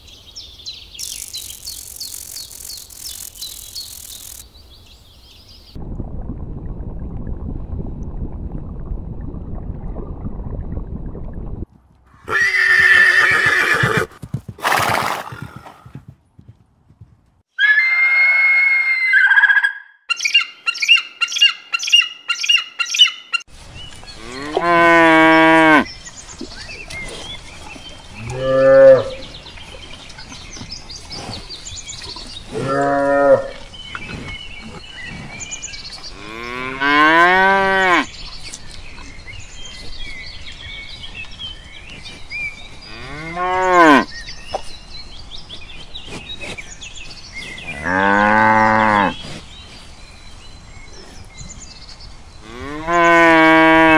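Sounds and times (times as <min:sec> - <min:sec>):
eagle high repeated calls: 0:17.6 - 0:23.4.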